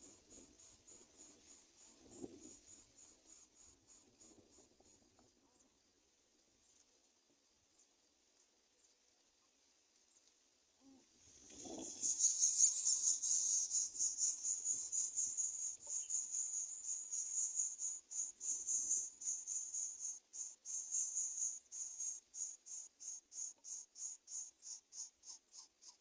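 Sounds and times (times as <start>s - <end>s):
nestlings begging with rasping hiss: 0.0s - 4.7s, 11.5s - 26.0s.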